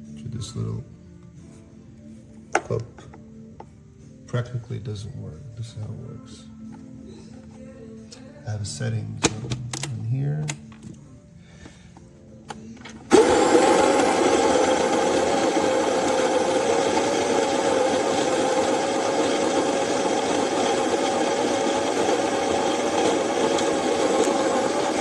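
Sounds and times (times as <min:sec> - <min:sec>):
electric coffee grinder running: 0:13.1 - 0:25.0.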